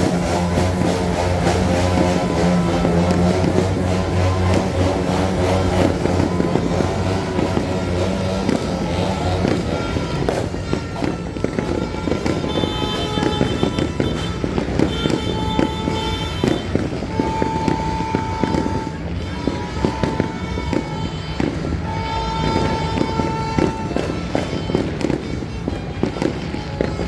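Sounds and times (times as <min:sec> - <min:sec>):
held high tone: 0:00.0 - 0:16.0
firecrackers crackling and popping: 0:00.0 - 0:27.0.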